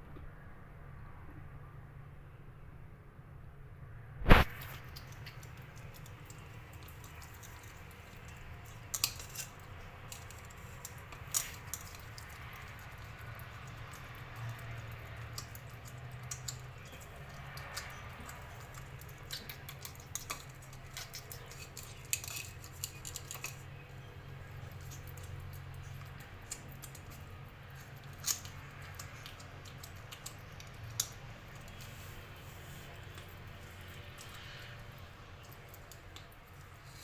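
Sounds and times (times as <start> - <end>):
kitten teeth clinking on dish: 5.0 - 31.8.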